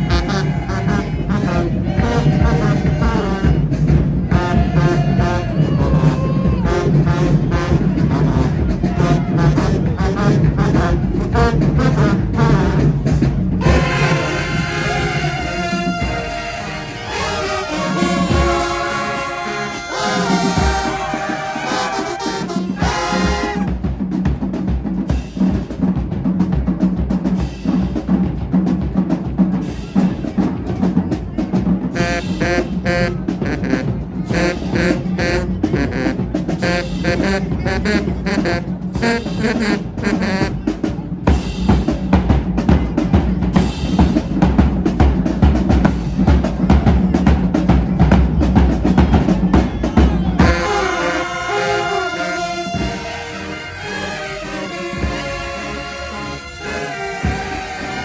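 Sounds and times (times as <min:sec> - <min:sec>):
bass drums beating: 0:00.0 - 0:16.8, 0:22.7 - 0:51.6
snare drums rolling: 0:00.0 - 0:58.0.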